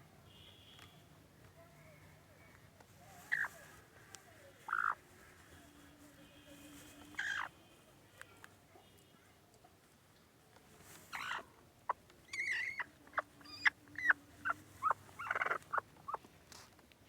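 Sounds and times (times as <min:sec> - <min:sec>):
hen squawks: 0:03.2 - 0:03.7, 0:04.6 - 0:05.0, 0:07.1 - 0:07.6, 0:11.1 - 0:11.5, 0:12.3 - 0:16.2
hen calling agitatedly: 0:03.2 - 0:03.9, 0:04.5 - 0:05.4, 0:07.1 - 0:07.6, 0:11.1 - 0:16.2.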